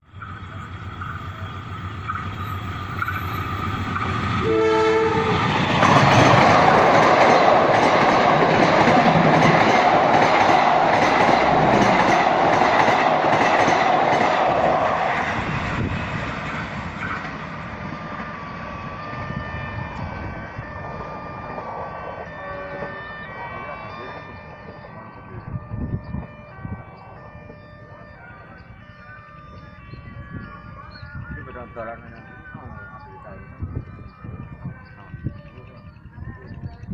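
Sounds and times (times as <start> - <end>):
train horn: 4.4 - 10.4, 18.0 - 32.3.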